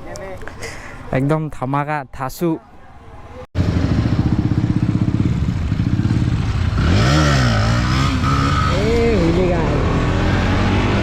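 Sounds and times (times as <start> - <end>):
motorcycle idling and revving: 3.6 - 11.0.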